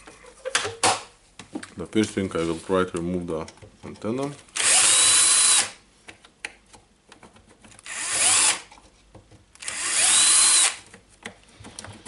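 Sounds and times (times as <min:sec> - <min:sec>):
power drill whining: 0:04.6 - 0:05.7, 0:07.8 - 0:08.6, 0:09.6 - 0:10.8
small clicks and knocks: 0:06.0 - 0:07.8.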